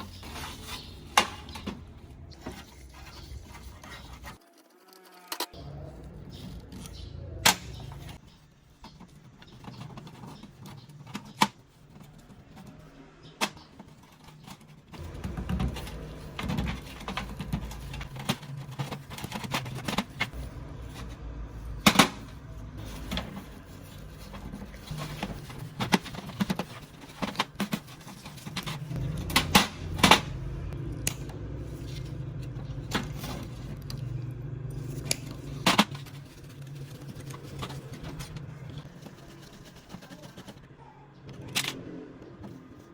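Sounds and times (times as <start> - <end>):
low steady hum: 14.4 - 39.8.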